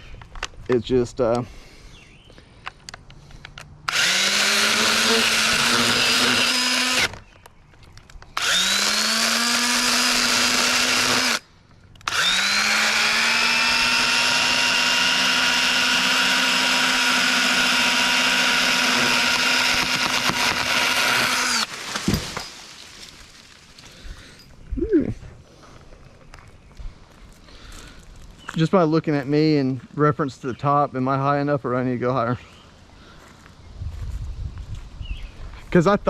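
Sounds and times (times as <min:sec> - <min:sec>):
electric pruning saw whining: 0:03.9 - 0:07.3, 0:08.3 - 0:11.4, 0:12.0 - 0:22.7.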